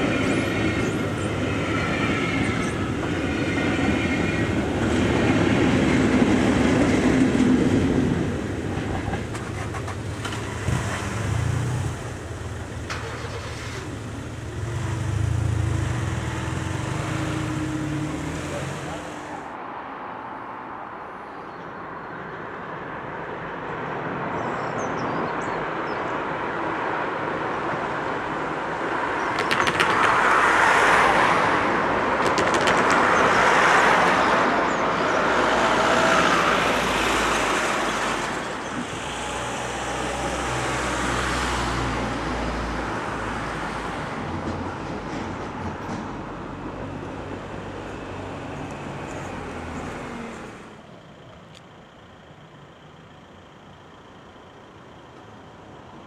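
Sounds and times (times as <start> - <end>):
train rumbling past: 0.0 - 19.5, 29.0 - 50.8
sharp clicks: 29.3 - 30.5, 32.2 - 33.4.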